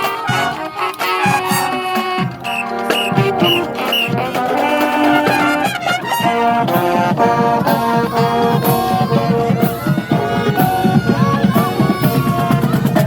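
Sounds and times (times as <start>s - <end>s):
brass instruments playing melody: 0.0s - 13.0s
drum and cymbal strokes: 1.0s - 5.3s.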